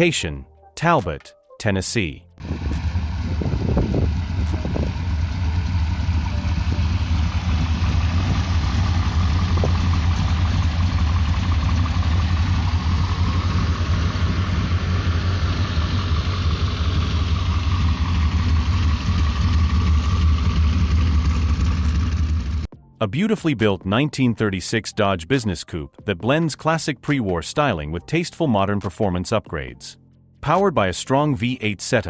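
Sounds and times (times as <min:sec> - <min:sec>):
car engine idling: 0:02.4 - 0:22.7.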